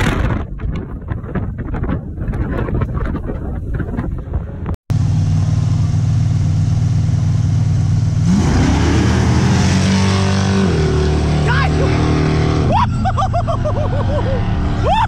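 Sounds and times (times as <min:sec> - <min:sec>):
car wind and road noise: 0:00.0 - 0:15.0
race car engines revving: 0:05.0 - 0:15.0.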